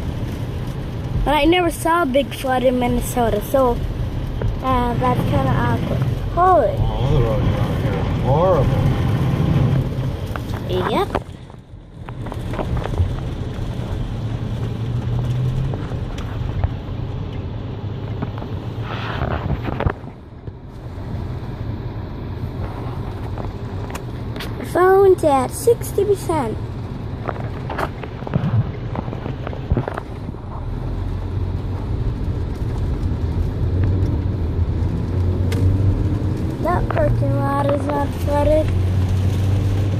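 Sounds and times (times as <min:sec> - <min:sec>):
car engine and road hum: 0:00.0 - 0:39.9
tyre hiss on wet road: 0:18.7 - 0:19.6.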